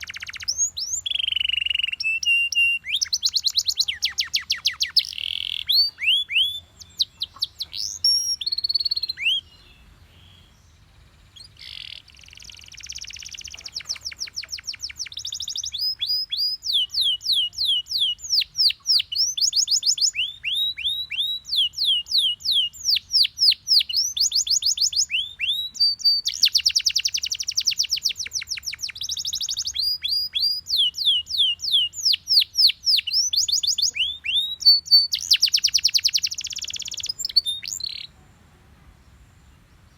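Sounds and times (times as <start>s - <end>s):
canary singing trills: 0.0s - 38.2s.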